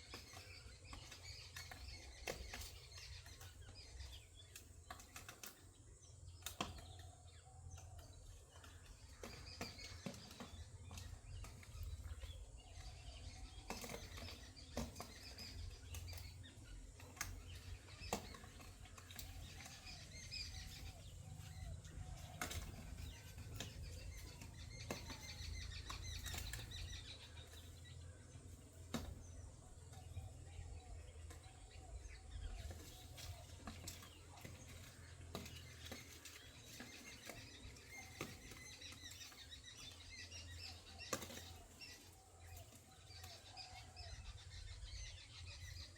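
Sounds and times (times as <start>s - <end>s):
faint bird chirps: 0.0s - 45.9s.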